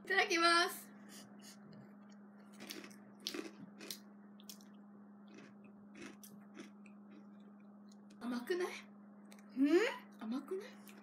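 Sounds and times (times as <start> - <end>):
crunchy cracker chewing: 2.6 - 4.7, 5.3 - 8.1.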